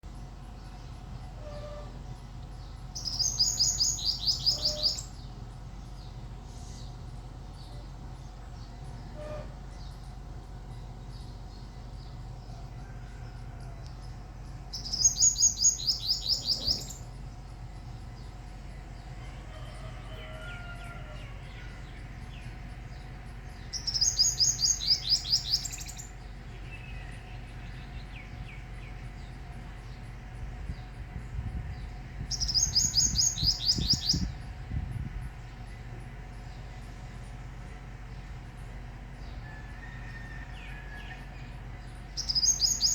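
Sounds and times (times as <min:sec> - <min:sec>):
soft bird chirps: 0:00.1 - 0:19.9, 0:21.6 - 0:34.4
small bird singing high notes: 0:03.0 - 0:05.1.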